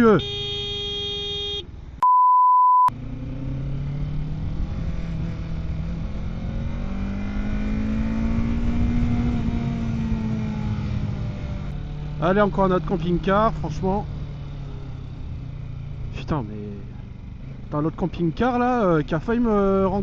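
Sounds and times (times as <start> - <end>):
censor bleep: 2.0 - 2.9
motorcycle engine accelerating: 2.9 - 20.0.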